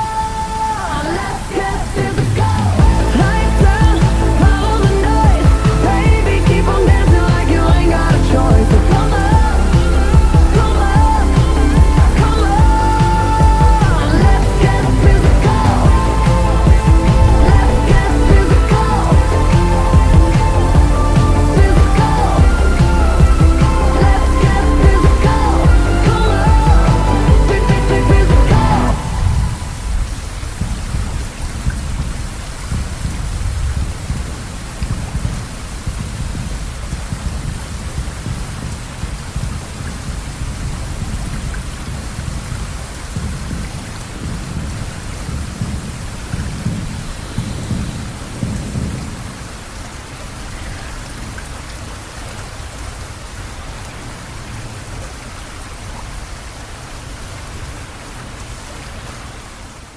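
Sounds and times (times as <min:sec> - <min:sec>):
rain falling: 0:00.0 - 0:59.9
deep rumble: 0:01.8 - 0:49.4.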